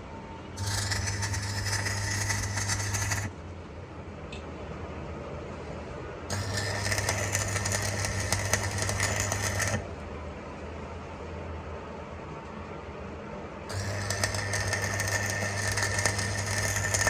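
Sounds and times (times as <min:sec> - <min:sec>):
cutting tool scraping metal: 0:00.6 - 0:03.3, 0:06.3 - 0:09.8, 0:13.7 - 0:17.0
metal lathe motor hum: 0:00.6 - 0:03.3, 0:06.3 - 0:09.8, 0:13.7 - 0:17.0.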